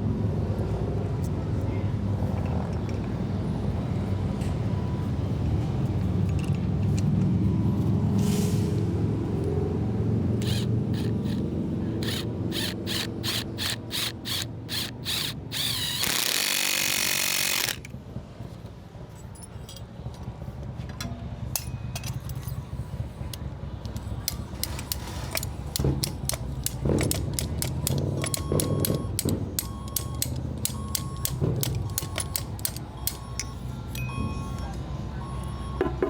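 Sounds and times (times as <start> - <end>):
power tool running in bursts: 10.4 - 17.9
tools and parts clattering: 19.1 - 34.7.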